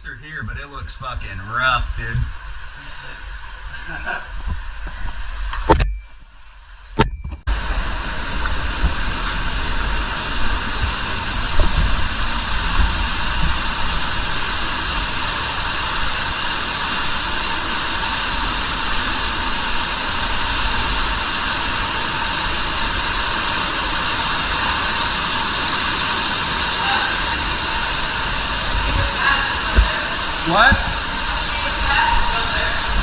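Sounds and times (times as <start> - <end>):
rush of falling water: 0.3 - 5.6, 7.5 - 33.0
low thumps: 6.9 - 7.6, 28.8 - 31.4.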